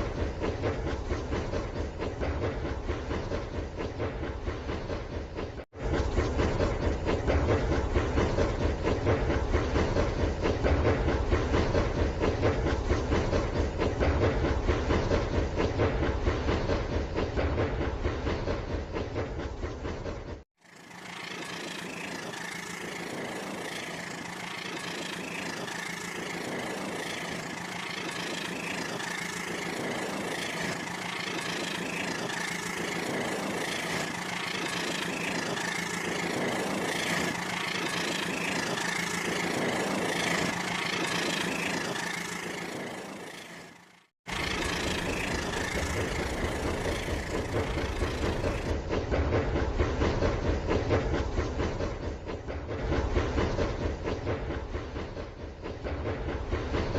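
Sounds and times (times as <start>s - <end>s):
low rumbling train: 0.0s - 56.9s
toy train motor humming: 20.6s - 48.8s.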